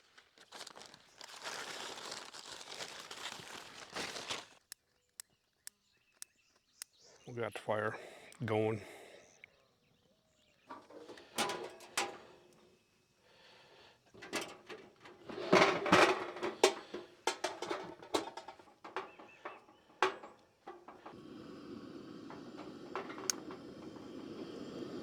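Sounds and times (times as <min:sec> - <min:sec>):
cooking gear knocking and clattering: 0:10.7 - 0:12.6, 0:14.1 - 0:21.6, 0:22.2 - 0:24.4
steady hiss: 0:20.2 - 0:25.0.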